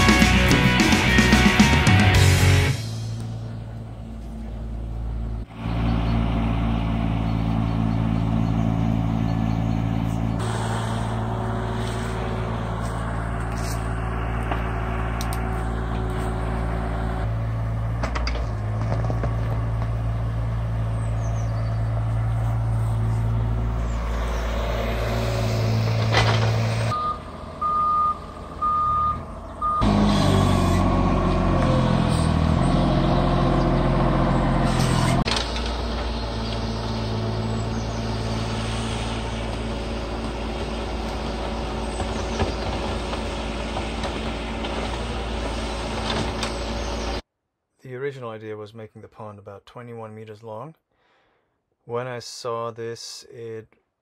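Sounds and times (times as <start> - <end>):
excavator diesel engine running: 0.0 - 47.2
forklift engine running: 0.0 - 47.2
reversing alarm beeping: 26.9 - 30.8.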